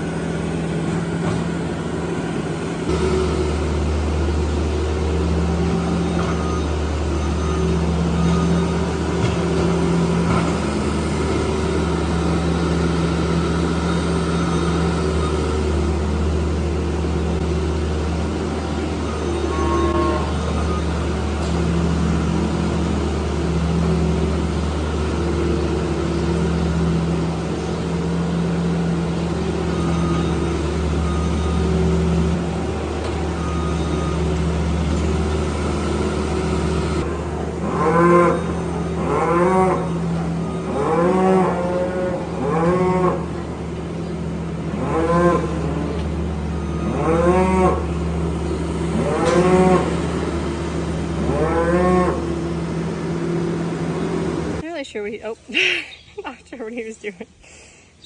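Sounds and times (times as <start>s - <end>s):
low engine drone: 0.0s - 55.3s
calves bawling: 29.6s - 57.1s.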